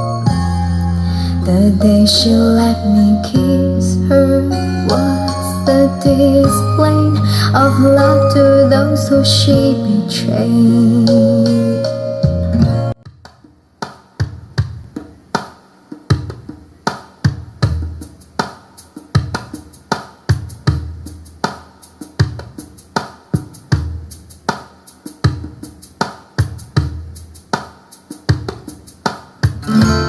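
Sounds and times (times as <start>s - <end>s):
kick drum thumps: 12.4s - 15.2s
snare or hi-hat strikes: 13.0s - 30.0s.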